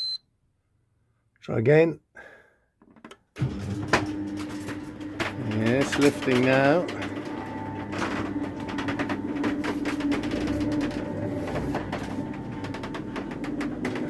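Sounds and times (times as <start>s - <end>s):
garage door motor humming: 3.4s - 14.0s
garage door rattling and clicking: 3.4s - 14.0s.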